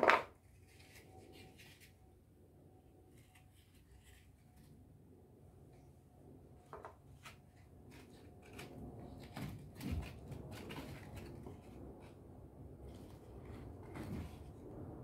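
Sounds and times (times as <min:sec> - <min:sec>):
objects tapping and knocking: 0:00.0 - 0:00.4, 0:06.6 - 0:12.2.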